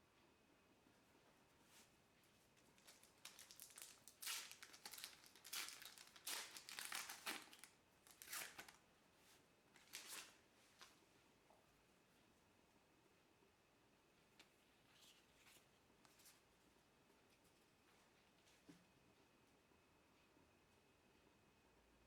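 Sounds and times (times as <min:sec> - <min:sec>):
plastic wrapper crinkling and tearing: 0:02.6 - 0:08.8, 0:09.8 - 0:10.4.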